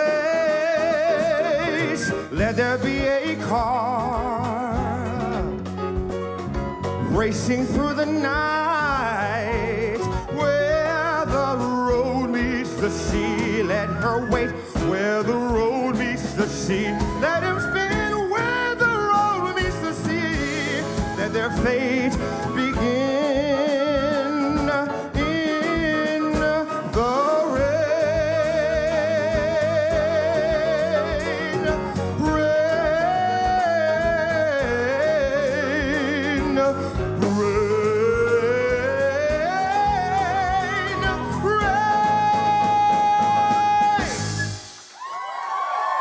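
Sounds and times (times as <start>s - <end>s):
person singing wordless runs: 0.0s - 44.6s
live band playing: 0.0s - 46.0s.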